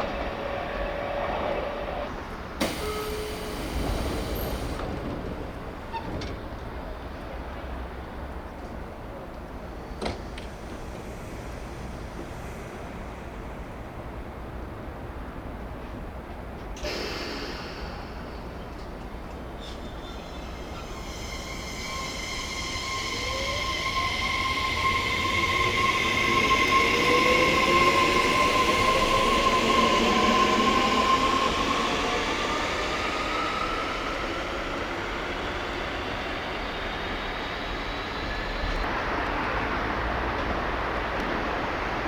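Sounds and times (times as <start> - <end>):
electric train motors whining: 0.0 - 5.4, 19.4 - 38.8
train rolling noise: 0.0 - 42.0.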